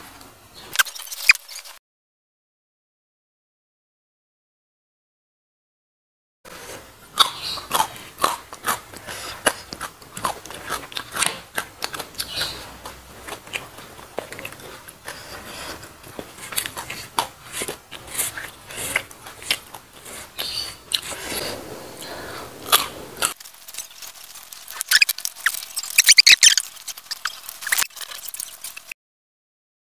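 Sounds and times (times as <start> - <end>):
person chewing: 6.5 - 29.0
wet mouth clicks: 24.8 - 28.9.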